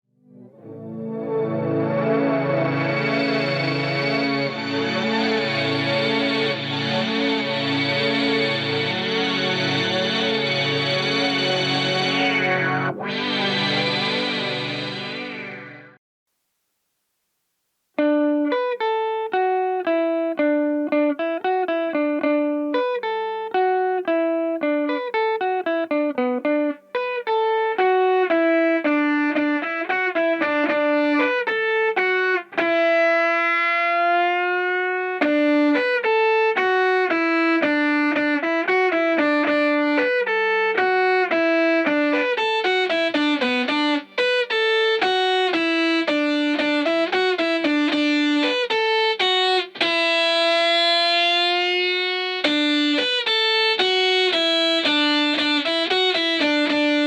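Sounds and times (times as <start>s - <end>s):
synth lead melody: 0.2s - 16.0s.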